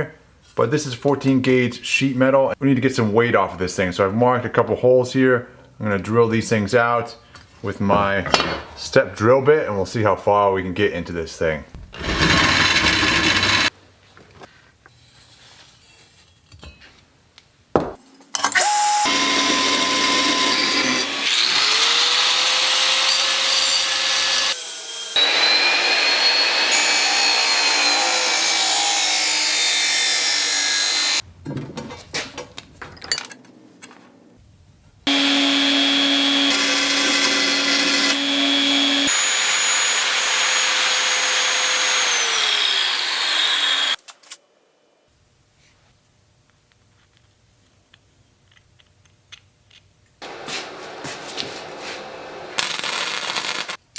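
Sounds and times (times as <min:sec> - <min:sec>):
electric drill cutting sheet steel: 0:12.0 - 0:13.7, 0:18.5 - 0:31.2, 0:35.1 - 0:44.0.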